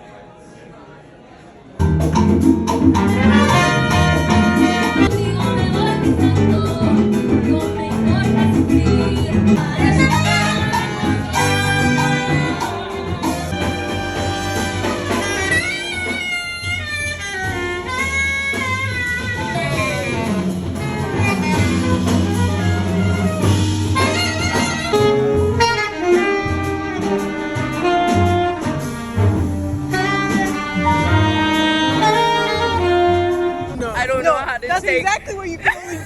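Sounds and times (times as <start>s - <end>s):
upbeat jazz instrumental: 1.9s - 30.7s.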